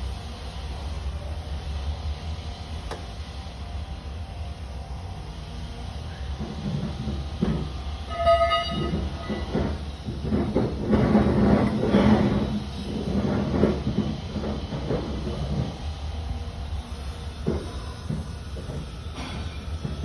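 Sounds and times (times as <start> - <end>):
clattering and rattling: 6.4 - 15.8.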